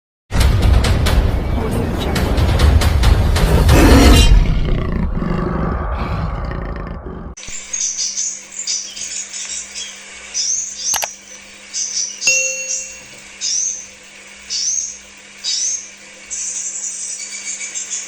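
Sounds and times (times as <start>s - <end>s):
bird twittering chirps: 12.1s - 13.1s.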